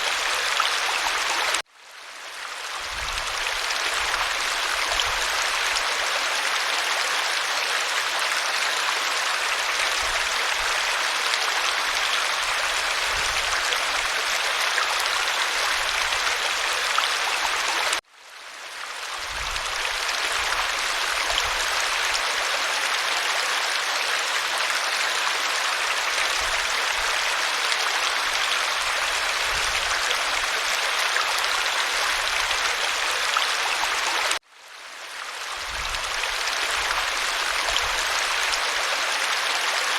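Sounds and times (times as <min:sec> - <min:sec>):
waterfall rushing: 0:00.0 - 0:01.6.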